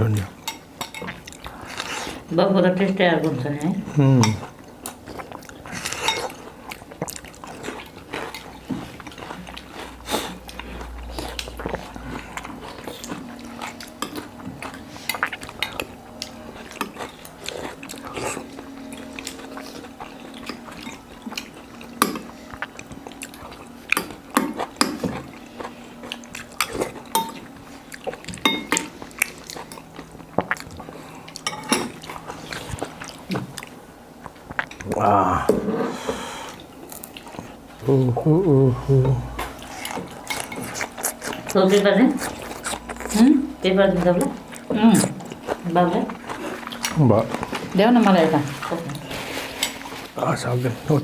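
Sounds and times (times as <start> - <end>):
cutlery clinking on plates: 28.3 - 28.9, 31.4 - 32.0.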